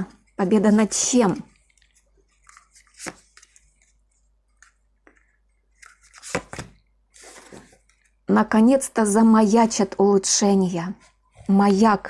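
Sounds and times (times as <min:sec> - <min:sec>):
cards rustling: 0:01.3 - 0:08.2.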